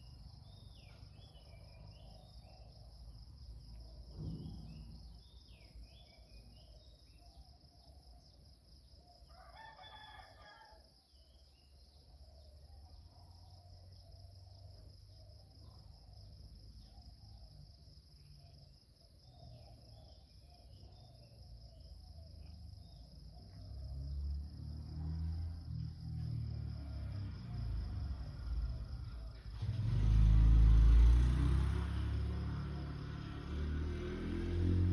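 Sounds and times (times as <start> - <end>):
crickets droning: 0.0 - 34.9
rooster crowing: 9.3 - 10.9.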